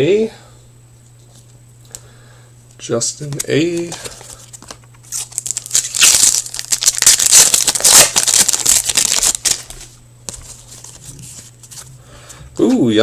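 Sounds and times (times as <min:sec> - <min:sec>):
foil wrapper tearing and crinkling: 0:04.6 - 0:09.8.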